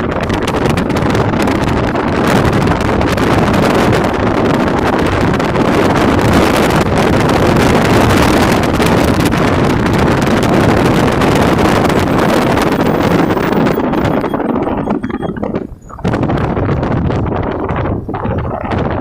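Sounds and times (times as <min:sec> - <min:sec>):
wind rush on microphone: 0:00.0 - 0:19.0.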